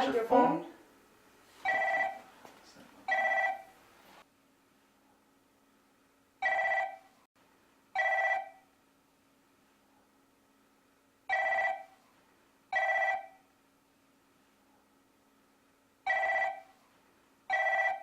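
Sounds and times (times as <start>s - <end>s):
phone ringing: 1.6s - 2.3s, 3.1s - 3.7s, 6.4s - 7.2s, 8.0s - 8.6s, 11.3s - 12.0s, 12.7s - 13.4s, 16.0s - 16.8s, 17.5s - 18.0s.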